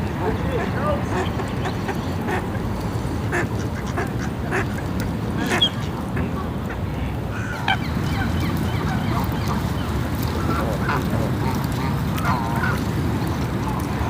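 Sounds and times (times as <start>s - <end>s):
geese honking: 7.4s - 13.0s.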